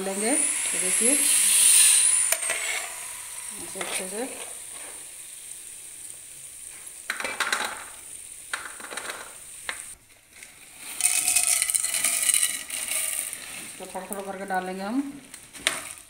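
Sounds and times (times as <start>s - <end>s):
metal spoon scraping a pan: 0.0s - 5.4s
loud sizzle in hot oil: 0.0s - 16.0s.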